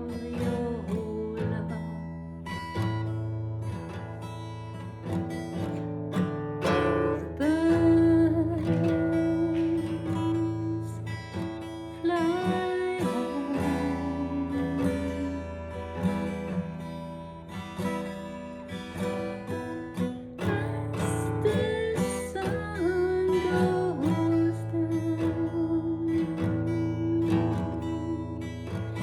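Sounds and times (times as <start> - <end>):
woman singing softly: 0.0 - 2.2, 7.1 - 16.7, 20.4 - 29.0
acoustic guitar strummed and plucked: 0.0 - 29.0.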